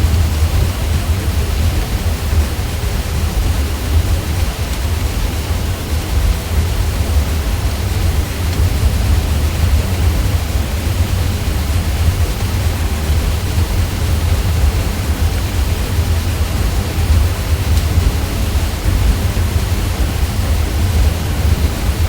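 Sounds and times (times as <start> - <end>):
ceiling fan humming: 0.0 - 22.0
even hiss: 0.0 - 22.0.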